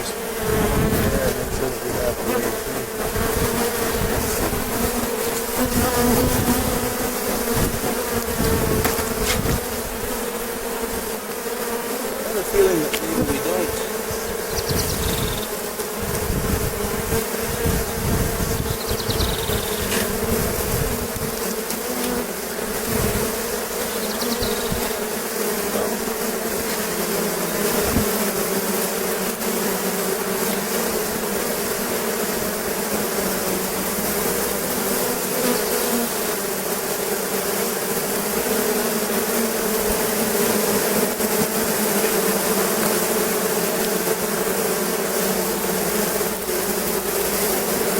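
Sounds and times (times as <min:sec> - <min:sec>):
honeybees buzzing: 0:00.0 - 0:47.9.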